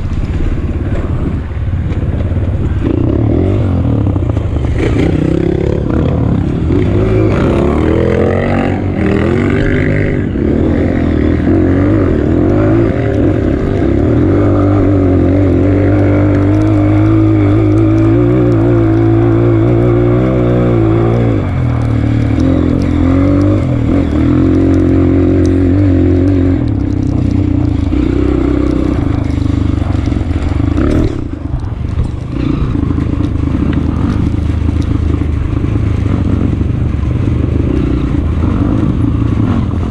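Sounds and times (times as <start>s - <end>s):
motorcycle engine revving under load: 2.6s - 39.9s.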